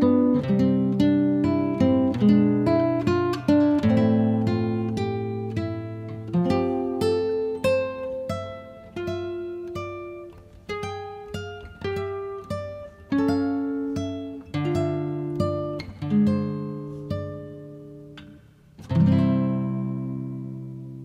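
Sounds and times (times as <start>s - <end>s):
guitar plucking melody: 0.0s - 21.0s.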